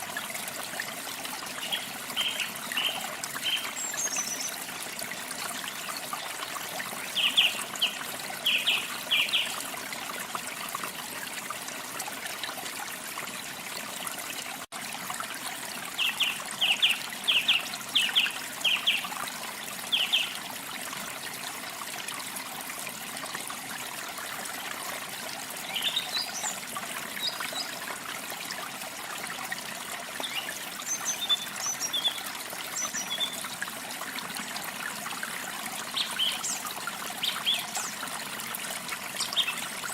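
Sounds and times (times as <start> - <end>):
stream trickling: 0.0 - 39.9
small birds chirping: 1.6 - 4.7, 7.0 - 9.6, 39.2 - 39.9.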